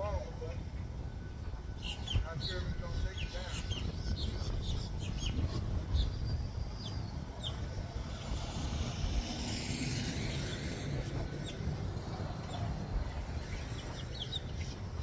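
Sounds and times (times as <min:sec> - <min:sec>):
road traffic rumble: 0:00.0 - 0:15.0
car passing: 0:07.2 - 0:15.0.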